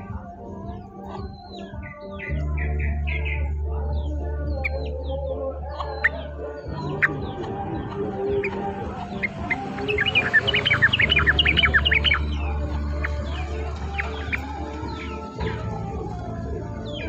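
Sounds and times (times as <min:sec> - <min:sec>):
songbird chirping: 0:00.0 - 0:17.0
lower bird calls: 0:01.3 - 0:16.0.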